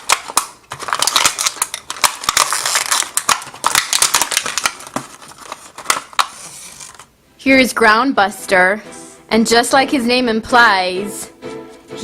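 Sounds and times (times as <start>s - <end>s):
plastic packaging crackling: 0.0s - 7.1s.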